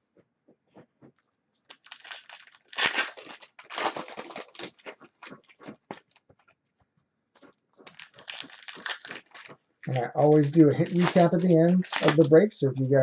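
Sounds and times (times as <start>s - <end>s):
card pack wrappers crinkling: 1.7s - 6.4s, 7.8s - 13.0s.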